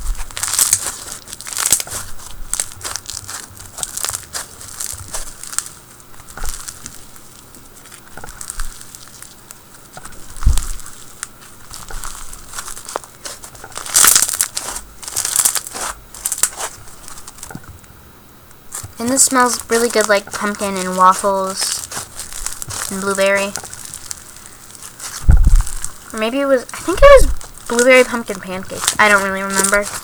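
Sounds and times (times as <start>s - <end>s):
foam bead slime crackling: 0.0s - 17.6s, 18.7s - 30.0s
dull thump: 25.2s - 25.9s.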